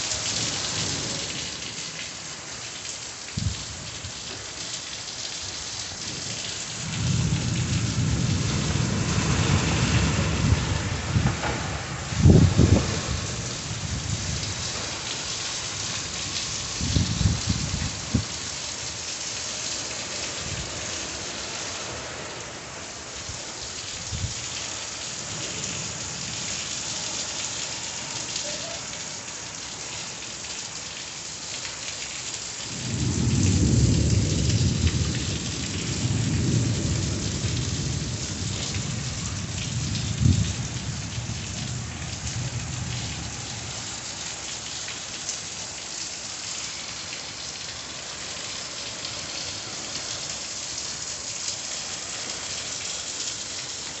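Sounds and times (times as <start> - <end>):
steady rain falling: 0.0 - 54.0
thunder rumbling: 6.8 - 15.0, 32.7 - 43.4.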